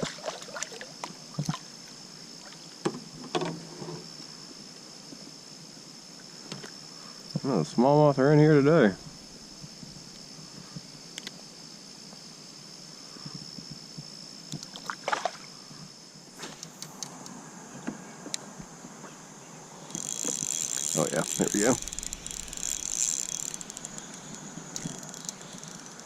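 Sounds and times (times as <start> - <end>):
high-pitched whine: 19.0 - 26.0
fishing reel ratcheting whir: 19.8 - 26.0.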